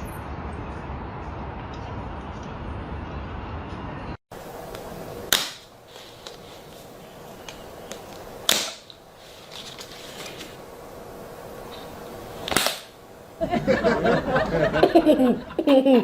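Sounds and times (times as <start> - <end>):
sharp cracks: 4.7 - 6.4, 7.3 - 9.1, 12.4 - 13.0.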